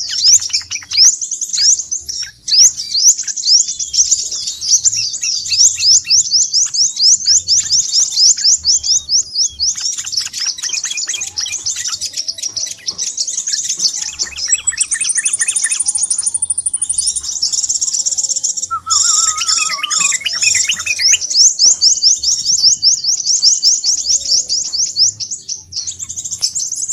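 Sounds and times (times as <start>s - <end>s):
birds chirping trills: 0.0s - 26.9s
lower chirps: 14.2s - 17.8s, 18.6s - 21.4s
thin high whistle: 15.2s - 17.2s, 18.7s - 21.0s.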